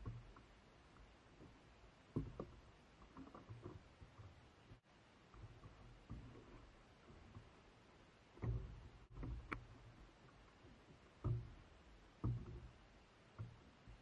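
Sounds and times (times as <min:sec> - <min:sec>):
dull knocks: 0:11.0 - 0:12.8.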